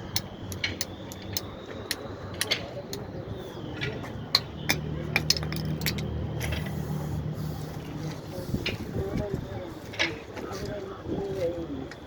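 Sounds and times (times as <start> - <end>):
clinks of tools and fittings: 0.0 - 3.0, 3.8 - 6.7.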